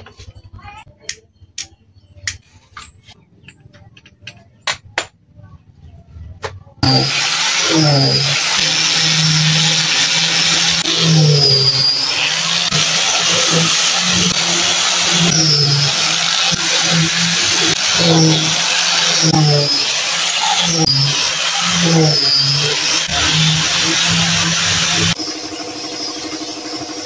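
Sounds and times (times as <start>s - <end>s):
electric sander on wood: 6.8s - 27.0s.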